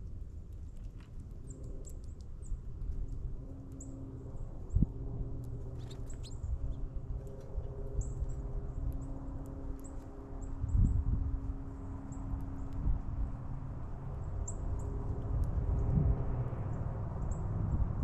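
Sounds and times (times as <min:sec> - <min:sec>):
steady low hum: 0:01.1 - 0:18.0
songbirds chirping: 0:01.3 - 0:10.9.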